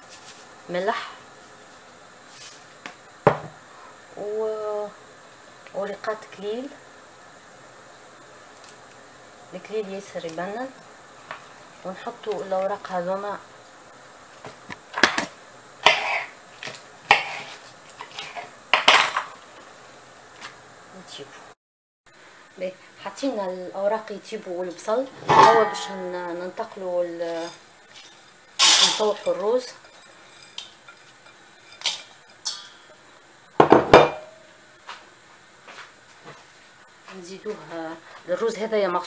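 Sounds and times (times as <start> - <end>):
dishes and utensils clinking: 25.2 - 26.0, 27.4 - 32.9
dishes clattering with ringing: 33.6 - 34.4.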